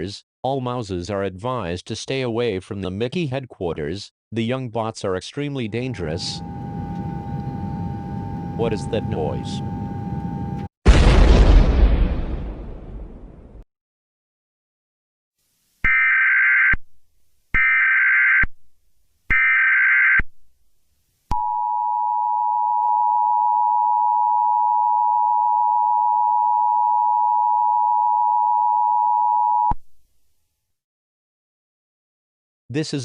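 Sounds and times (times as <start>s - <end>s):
two-tone attention signal: 5.6s - 10.6s.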